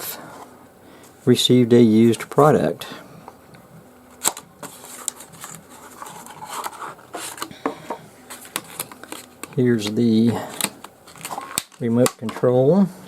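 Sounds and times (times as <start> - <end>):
plastic packaging rustling: 4.0 - 12.0.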